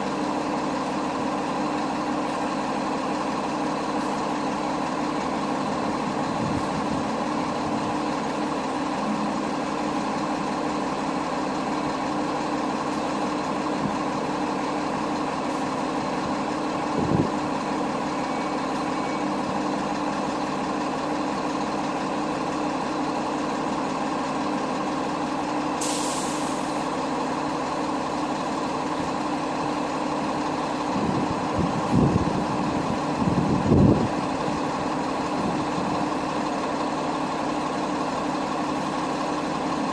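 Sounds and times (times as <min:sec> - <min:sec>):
truck engine running: 0:00.0 - 0:39.9
air hiss: 0:25.8 - 0:26.7.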